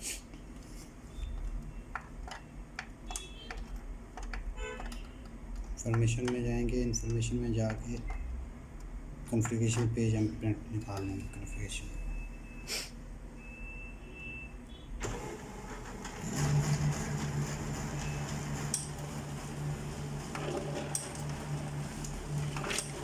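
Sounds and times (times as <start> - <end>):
printer motors humming: 1.2 - 12.2, 15.0 - 23.0
printer click: 2.0 - 8.2.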